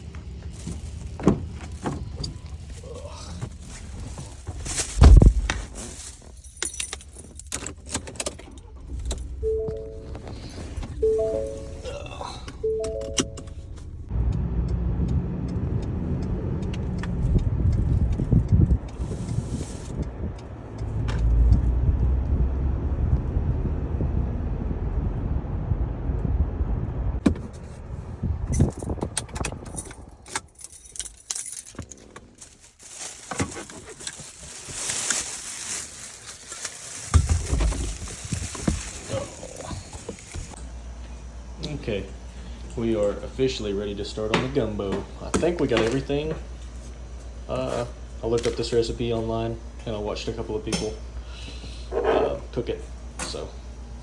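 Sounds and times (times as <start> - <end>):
car rumbling under way: 0.0 - 54.0
keys jangling: 6.2 - 11.8, 28.5 - 32.6
clicks: 12.4 - 14.1.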